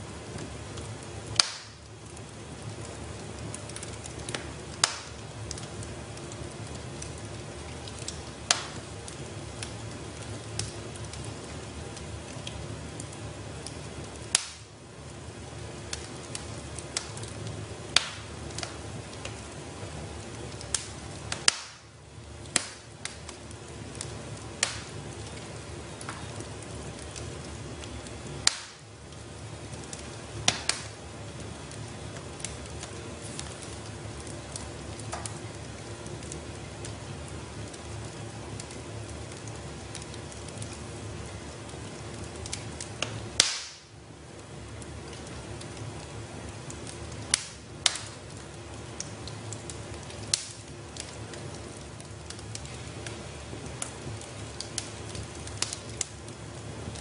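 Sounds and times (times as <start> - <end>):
fire crackles and pops: 0.0 - 57.0
wood fire burning: 0.0 - 57.0.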